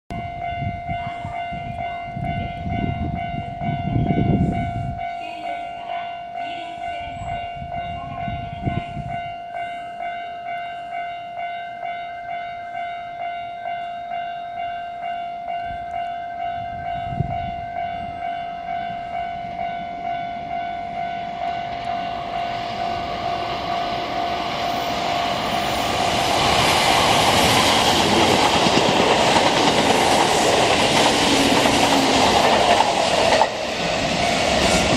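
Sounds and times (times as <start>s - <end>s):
railway warning signal ringing: 0.1s - 34.9s
train rushing: 16.4s - 34.9s.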